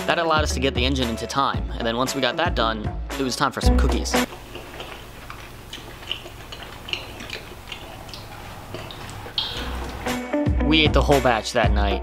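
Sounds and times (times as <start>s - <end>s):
cookies crunching while chewed: 4.3s - 10.1s.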